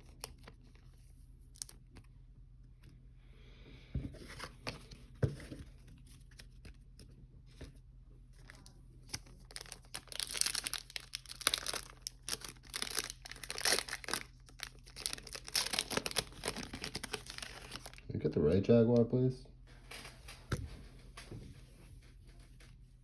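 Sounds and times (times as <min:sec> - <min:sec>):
wrapper tearing and crinkling: 0:08.4 - 0:18.0.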